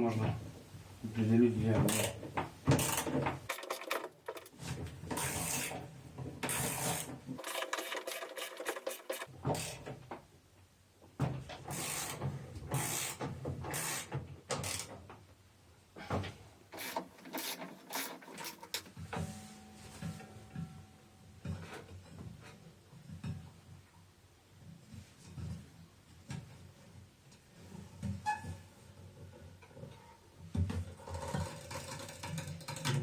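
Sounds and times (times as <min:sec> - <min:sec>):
metal parts scraping and knocking: 0:01.9 - 0:02.2, 0:02.8 - 0:09.8, 0:16.8 - 0:18.9.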